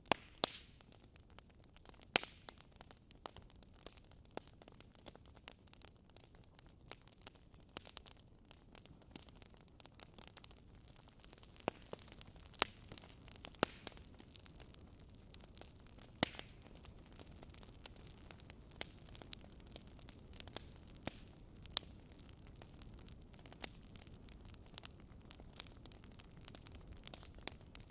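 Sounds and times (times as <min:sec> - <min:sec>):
wood fire crackling: 0:00.0 - 0:27.9.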